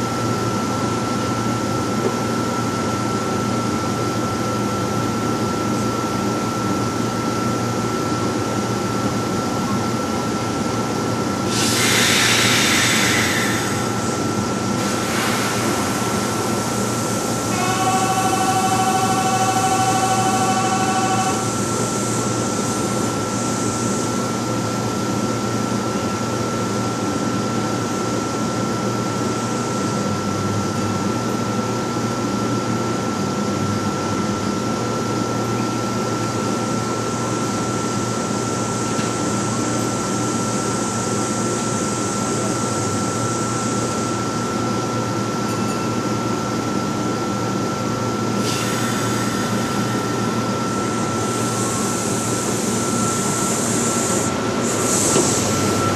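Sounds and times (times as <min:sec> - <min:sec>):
train equipment humming: 0:04.8 - 0:25.4, 0:45.4 - 0:55.9
air hiss: 0:11.4 - 0:17.9, 0:48.4 - 0:55.8
high whine: 0:12.4 - 0:23.3, 0:48.4 - 0:55.9.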